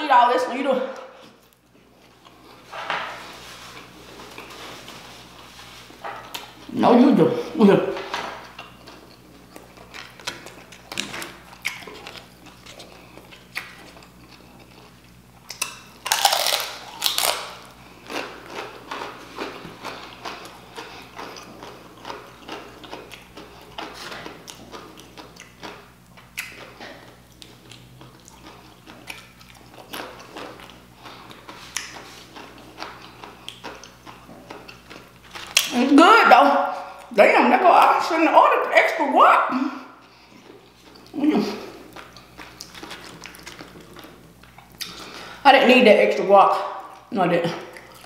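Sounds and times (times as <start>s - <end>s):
crunching tortilla chips: 8.6s - 35.8s, 41.9s - 45.4s.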